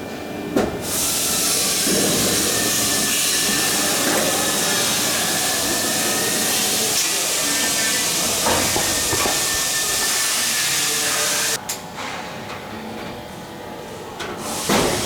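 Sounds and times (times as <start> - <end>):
compressed air hissing: 0.8 - 11.6.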